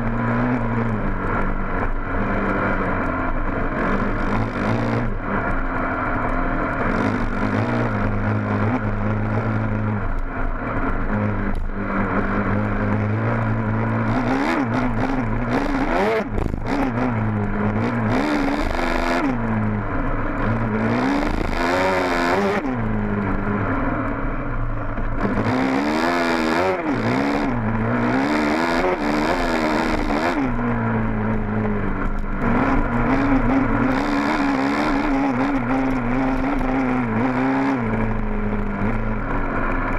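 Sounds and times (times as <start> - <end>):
dirt bike engine revving: 0.0 - 24.0, 24.9 - 39.9.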